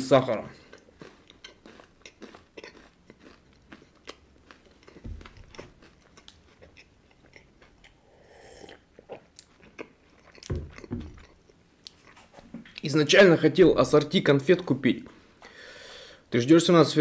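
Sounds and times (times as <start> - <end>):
chewing candy with crunches: 0.2 - 12.3
person sipping tea: 4.0 - 10.4.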